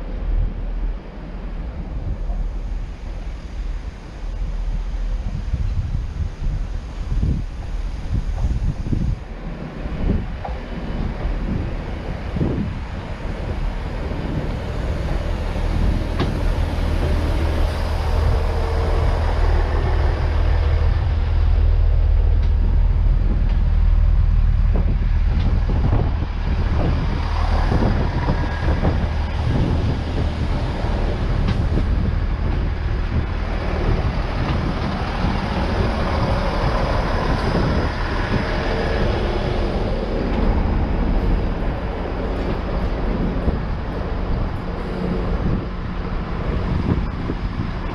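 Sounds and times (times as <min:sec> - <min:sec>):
train engine rumble: 0:00.0 - 0:47.9.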